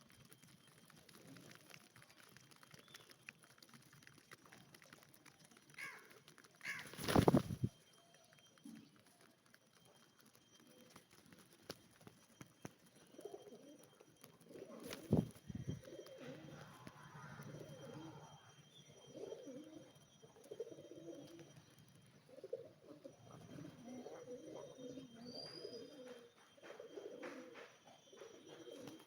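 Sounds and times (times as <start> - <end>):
birds cooing: 5.6 - 7.8, 12.9 - 29.0.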